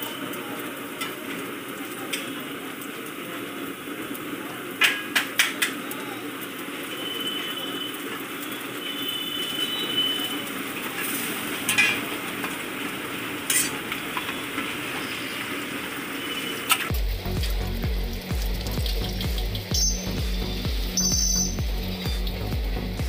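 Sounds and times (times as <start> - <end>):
egg sizzling on a griddle: 0.0 - 23.0
background music with beat: 16.9 - 23.0.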